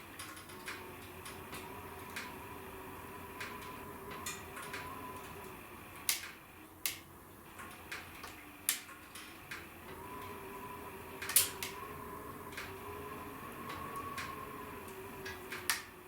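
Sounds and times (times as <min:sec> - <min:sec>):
wood fire crackling and popping: 0:03.4 - 0:09.8, 0:11.2 - 0:11.8.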